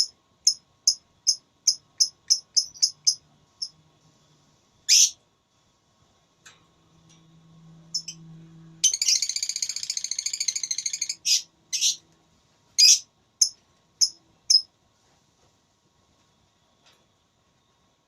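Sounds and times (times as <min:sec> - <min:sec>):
lovebird chattering trill: 0:00.0 - 0:03.7, 0:04.9 - 0:05.2, 0:07.9 - 0:08.2, 0:08.8 - 0:12.0, 0:12.8 - 0:14.6
sharp high bird chirps: 0:00.0 - 0:03.7, 0:04.9 - 0:05.2, 0:07.9 - 0:08.2, 0:08.8 - 0:12.0, 0:12.8 - 0:14.7.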